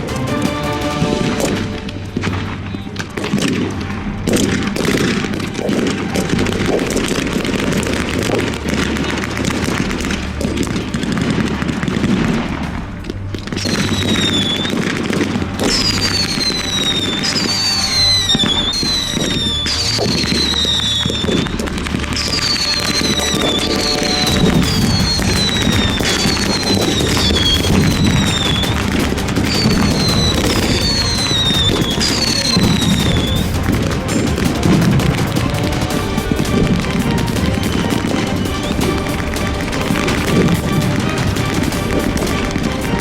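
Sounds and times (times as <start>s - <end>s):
background music: 0.0s - 43.0s
high falling whistles: 22.2s - 33.4s.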